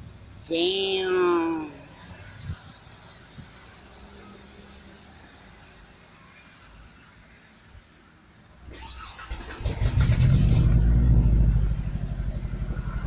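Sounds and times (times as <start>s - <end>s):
truck starter cranking: 8.7s - 11.8s
truck engine revving and idling: 8.8s - 13.0s.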